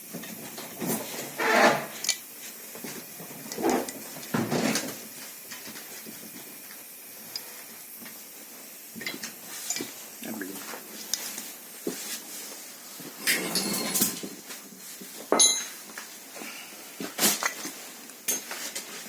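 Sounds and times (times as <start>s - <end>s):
metal tools clinking and scraping: 13.2s - 14.2s, 15.3s - 15.8s.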